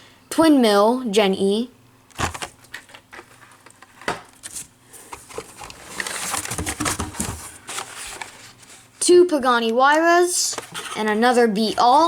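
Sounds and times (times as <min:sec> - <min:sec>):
plastic packaging clicks and knocks: 0:02.1 - 0:08.3
plastic packs rustling and sliding: 0:02.1 - 0:09.1.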